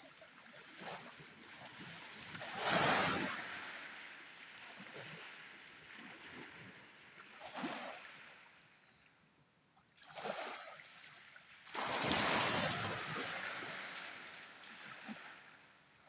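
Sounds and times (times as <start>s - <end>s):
sea waves breaking on shore: 2.1s - 6.6s, 11.7s - 15.7s.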